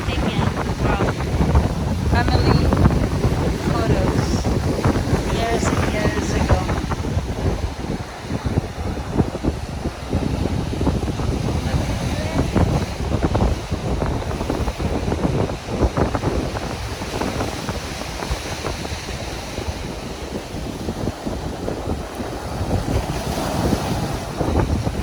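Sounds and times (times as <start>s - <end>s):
waves on a beach: 0.0s - 25.0s
wind buffeting microphone: 0.0s - 25.0s.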